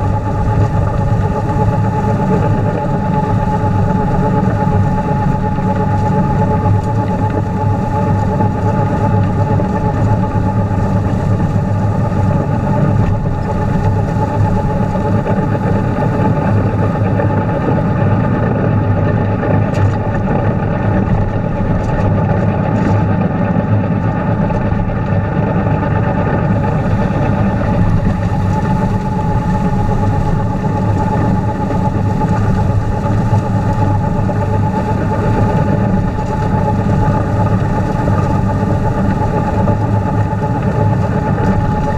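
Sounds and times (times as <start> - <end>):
snowblower whine: 0.0 - 41.9
tractor engine running: 17.4 - 41.9.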